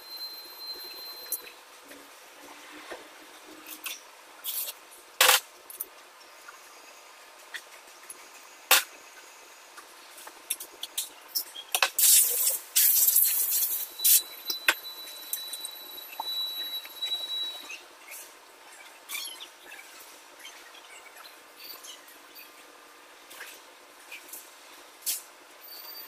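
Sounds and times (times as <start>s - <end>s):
hissing spray: 12.0s - 14.2s.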